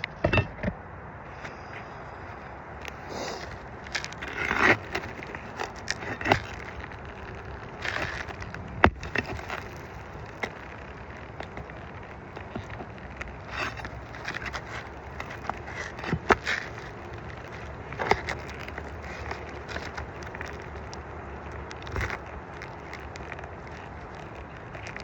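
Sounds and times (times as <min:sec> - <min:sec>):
clicks and knocks: 0:00.0 - 0:00.8
hand tools scraping roof shingles: 0:02.8 - 0:25.0.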